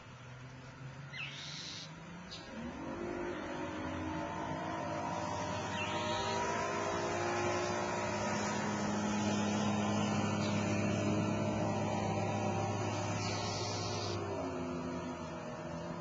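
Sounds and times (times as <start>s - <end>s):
lawn tractor engine running: 4.2s - 16.0s.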